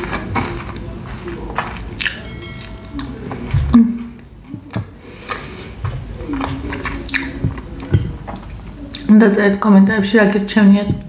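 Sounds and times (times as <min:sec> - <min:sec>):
chewing and mouth sounds: 0:00.0 - 0:09.1
chiming sound effect: 0:02.2 - 0:03.6.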